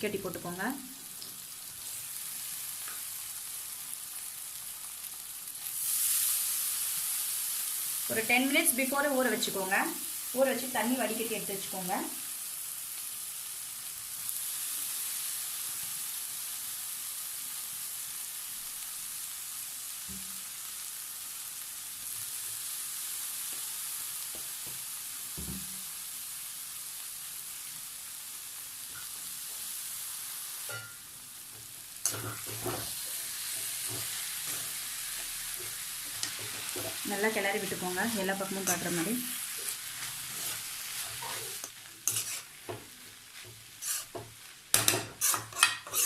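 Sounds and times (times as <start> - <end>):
food sizzling in hot oil: 0.0 - 46.0
spoon knocking and scraping pan: 30.7 - 37.0, 38.5 - 46.0.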